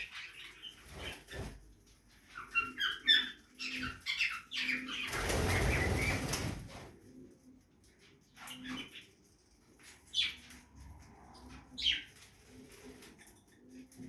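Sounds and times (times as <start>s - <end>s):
bird wings flapping: 5.1s - 6.9s.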